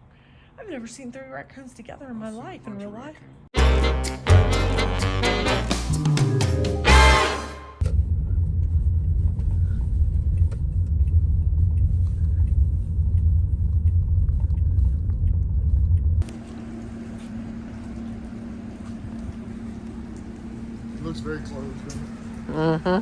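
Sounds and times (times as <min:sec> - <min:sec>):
quiet low hum: 0:07.8 - 0:16.3
steady low rumble: 0:07.8 - 0:16.4.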